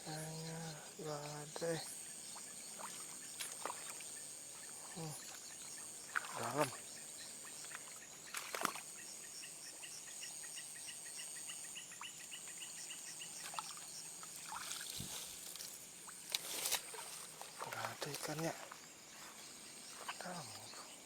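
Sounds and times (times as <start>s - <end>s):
insects chirring: 0.0s - 21.0s
water splashing: 2.6s - 6.8s, 13.4s - 15.4s.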